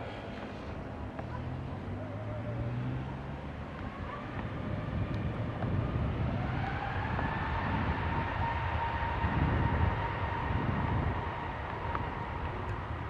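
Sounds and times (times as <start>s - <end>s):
jet engines rumbling and whining: 3.7s - 13.0s.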